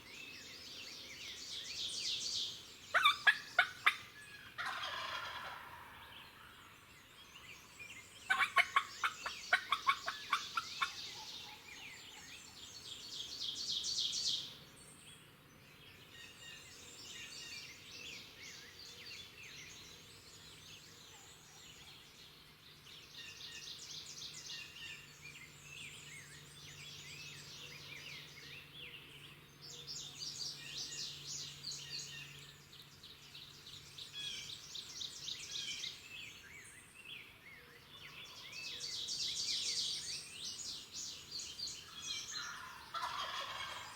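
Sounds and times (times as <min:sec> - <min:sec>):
songbirds chirping: 0:00.0 - 0:43.9
turkey gobbling: 0:03.0 - 0:04.0, 0:04.6 - 0:06.1, 0:08.3 - 0:10.9, 0:42.5 - 0:43.9.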